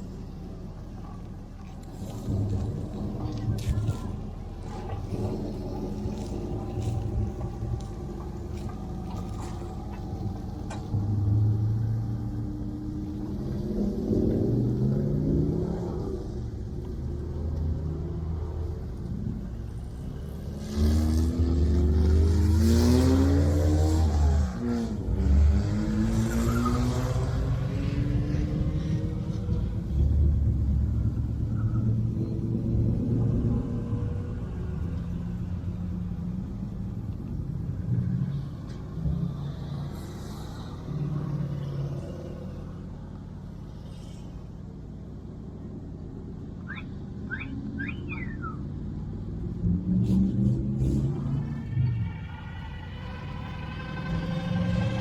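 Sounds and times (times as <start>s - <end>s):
car engine idling: 0.0s - 13.6s, 50.9s - 55.0s
car engine revving: 0.0s - 31.4s, 46.7s - 55.0s.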